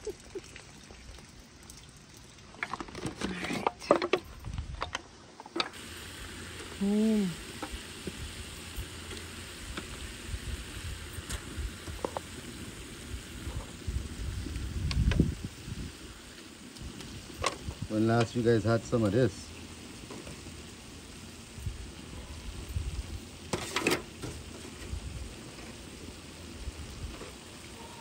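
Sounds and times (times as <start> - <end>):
fish roe frying in oil: 5.7 - 28.0.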